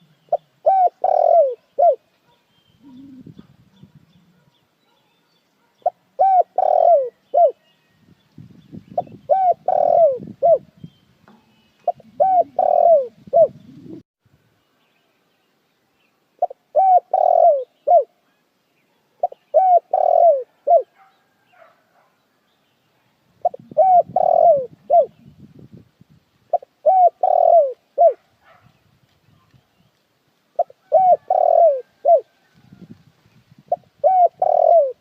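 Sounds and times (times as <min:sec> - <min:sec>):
dove cooing: 0:00.0 - 0:02.0, 0:02.8 - 0:04.5, 0:05.8 - 0:07.6, 0:09.0 - 0:10.7, 0:11.5 - 0:14.0, 0:16.4 - 0:18.2, 0:19.2 - 0:21.0, 0:23.4 - 0:25.3, 0:26.5 - 0:28.2, 0:30.6 - 0:32.9, 0:33.6 - 0:35.0.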